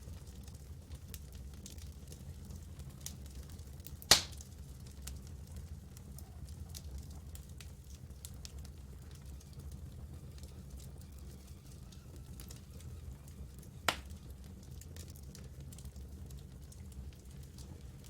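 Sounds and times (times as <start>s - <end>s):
campfire crackling: 0.0s - 18.0s
loud fire pop: 4.1s - 4.4s, 13.9s - 14.1s.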